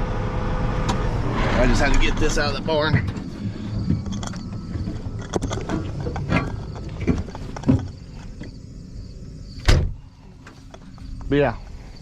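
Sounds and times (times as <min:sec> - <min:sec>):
vehicle engine rumbling: 0:00.0 - 0:12.0
knocks and clunks: 0:00.8 - 0:08.6, 0:09.6 - 0:11.0.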